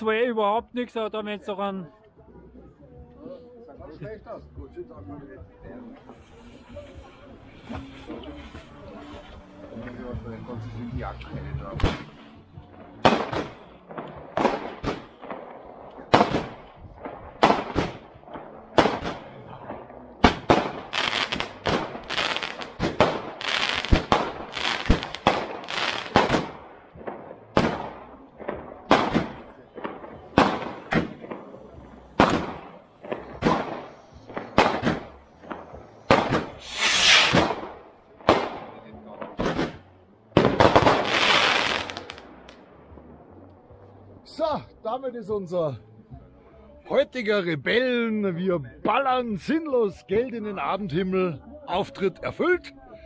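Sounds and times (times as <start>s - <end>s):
fireworks banging: 5.8s - 43.2s
ground fountain firework hissing: 5.9s - 19.6s, 20.2s - 38.7s, 39.4s - 42.5s.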